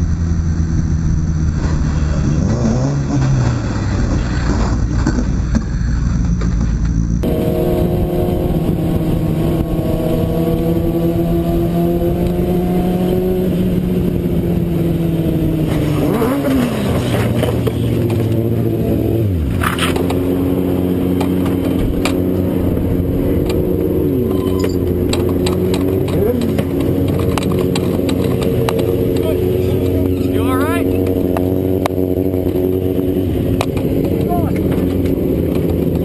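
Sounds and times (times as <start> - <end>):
racing motorcycle engines passing: 7.2 - 36.0.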